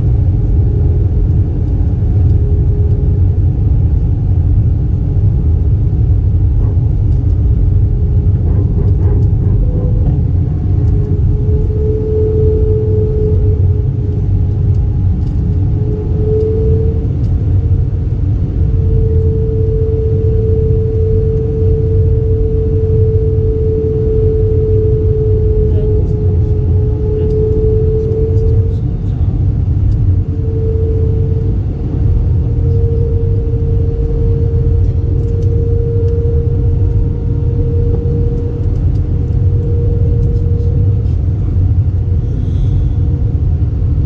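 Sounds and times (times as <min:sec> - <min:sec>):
airplane cabin engine rumble: 0:00.0 - 0:44.0
humming tone: 0:00.0 - 0:44.0.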